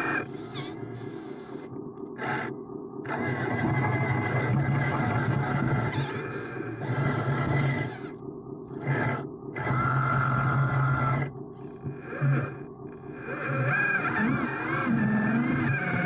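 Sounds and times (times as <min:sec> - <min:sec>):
small electric motors whirring: 0:05.4 - 0:12.6, 0:13.2 - 0:16.0.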